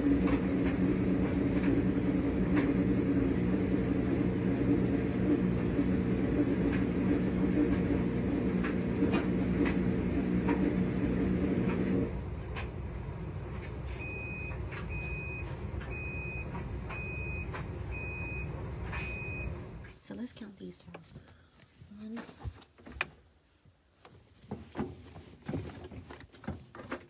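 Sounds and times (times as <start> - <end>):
washing machine beeping: 0.0 - 12.3, 13.7 - 19.8
washing machine motor humming: 0.0 - 19.9.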